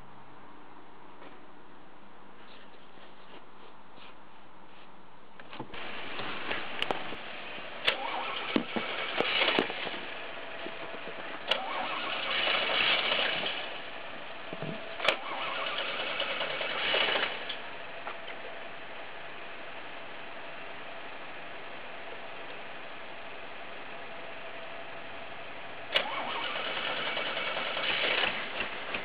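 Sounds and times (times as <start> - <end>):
starter cranking engine: 5.7 - 10.1, 11.4 - 13.8, 15.0 - 17.6, 25.9 - 29.0.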